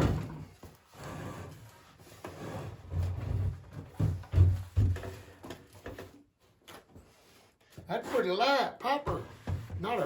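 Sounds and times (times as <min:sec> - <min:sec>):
wooden thumps and knocks: 0:03.2 - 0:06.2.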